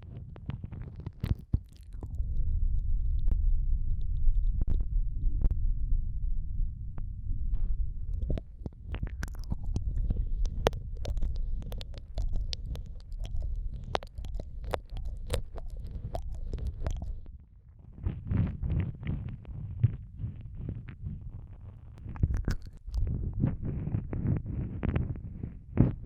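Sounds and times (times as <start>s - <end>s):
low muffled rumble: 0.0s - 26.0s
wet mouth clicks and smacks: 0.9s - 2.2s, 8.1s - 17.3s, 22.0s - 23.9s.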